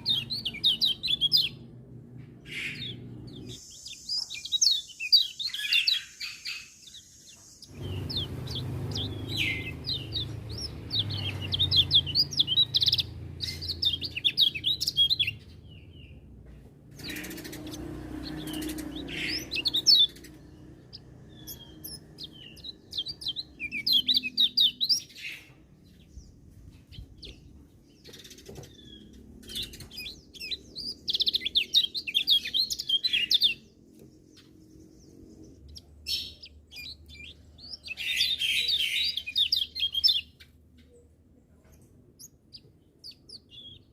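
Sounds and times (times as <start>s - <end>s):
bird twittering: 0.0s - 1.7s, 2.4s - 16.1s, 17.0s - 25.6s, 26.9s - 33.7s.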